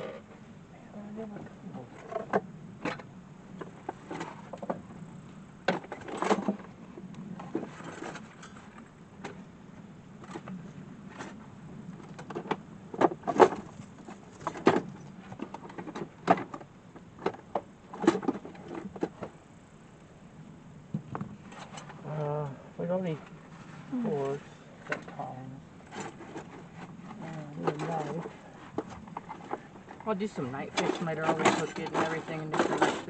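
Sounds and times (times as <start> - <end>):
faint low hum: 0.0 - 33.0.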